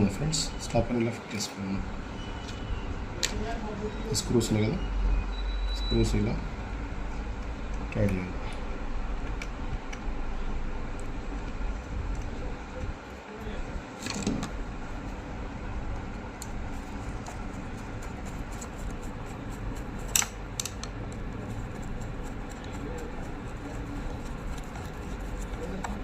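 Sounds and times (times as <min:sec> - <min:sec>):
steady low hum: 0:00.0 - 0:26.0
screwdriver clicks and taps: 0:20.2 - 0:21.2.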